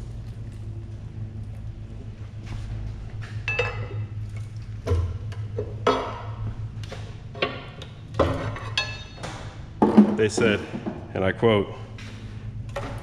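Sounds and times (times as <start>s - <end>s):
steady low hum: 0.0s - 13.0s
metal tools clinking and knocking: 8.3s - 10.6s.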